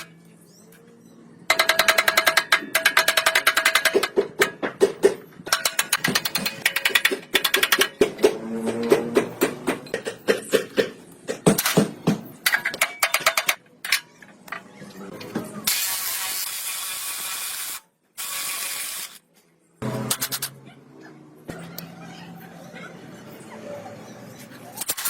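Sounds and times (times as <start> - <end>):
metal parts clicking and knocking: 1.5 - 15.3, 20.0 - 20.6, 24.8 - 25.0.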